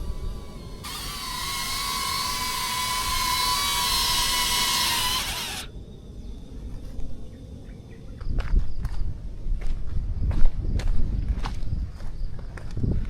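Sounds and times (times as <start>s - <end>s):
drone propellers whirring: 0.0s - 5.7s.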